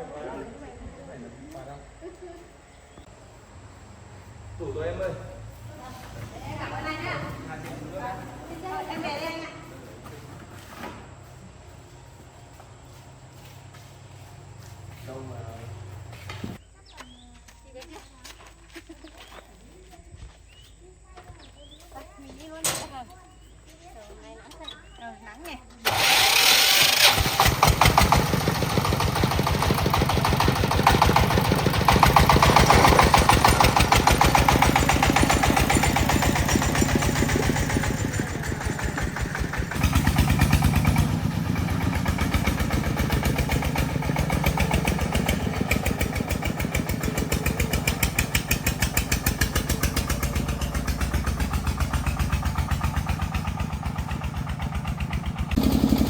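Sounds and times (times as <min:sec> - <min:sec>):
vehicle engine driving off: 0:02.7 - 0:16.6, 0:25.8 - 0:56.0.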